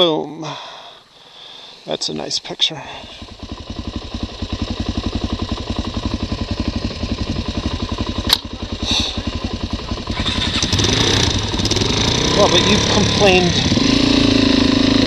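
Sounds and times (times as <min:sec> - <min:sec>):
motorcycle engine idling: 0:02.7 - 0:15.0
sharp click: 0:08.3 - 0:08.5.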